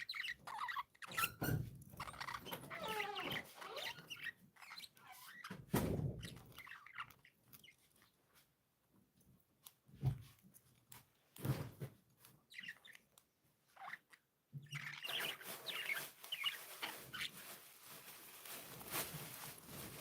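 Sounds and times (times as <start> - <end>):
budgerigars chirping: 0.0 - 5.3, 13.8 - 17.3
rustling: 14.8 - 20.0.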